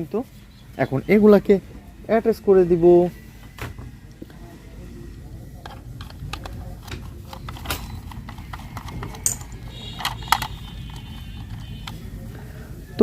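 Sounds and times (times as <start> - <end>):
plastic toy parts clicking: 5.6 - 12.1.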